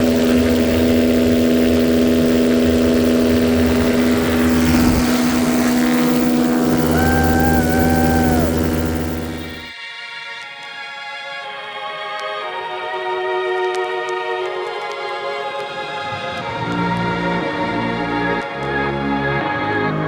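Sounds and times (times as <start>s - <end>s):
higher wavering tone: 0.0s - 9.7s
paramotor engine and propeller: 0.0s - 9.7s
wind hiss: 0.0s - 9.7s.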